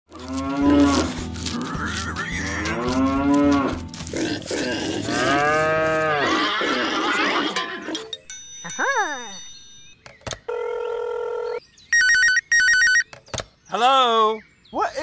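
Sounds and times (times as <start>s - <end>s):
cows mooing: 0.1s - 8.0s.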